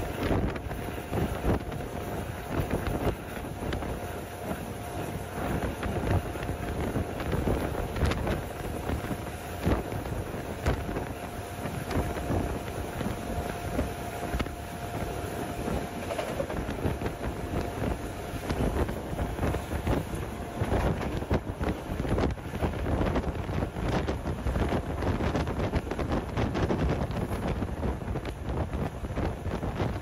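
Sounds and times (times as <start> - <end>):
thin steady whine: 0.0 - 29.1
train wheels rumbling on rails: 0.0 - 30.0
wind buffeting microphone: 0.0 - 30.0.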